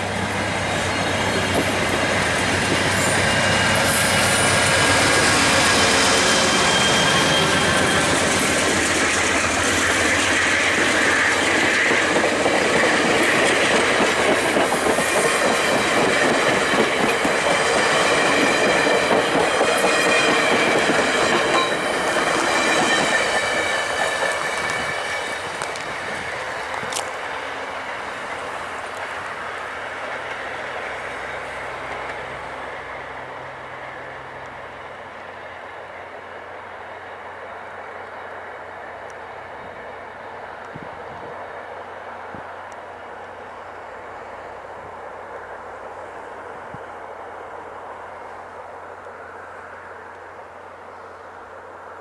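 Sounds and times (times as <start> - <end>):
wheels clicking over rail joints: 0.0 - 32.6
high wheel squeal: 0.1 - 13.9, 14.8 - 26.7.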